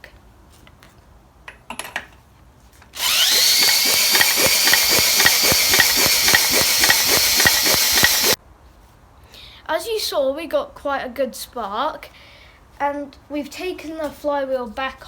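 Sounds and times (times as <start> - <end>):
power drill whining: 3.0 - 8.4
regular ticking: 3.0 - 8.4.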